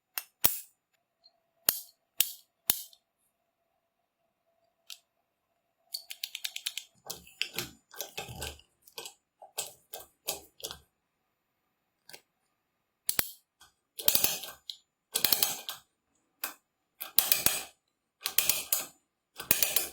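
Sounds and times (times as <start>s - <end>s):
small hard parts clicking and rattling: 5.9s - 10.9s, 13.1s - 19.9s.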